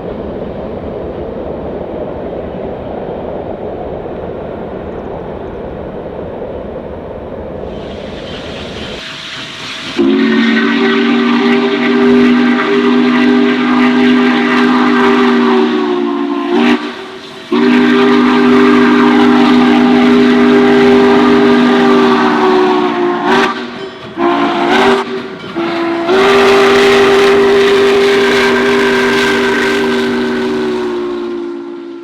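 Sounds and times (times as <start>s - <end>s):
locomotive air horn: 7.7s - 32.0s.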